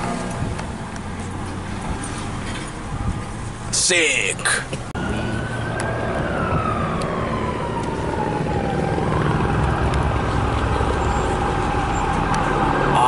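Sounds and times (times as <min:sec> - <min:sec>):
low traffic rumble: 0:00.0 - 0:13.0
siren-like tone sliding down: 0:05.0 - 0:13.0.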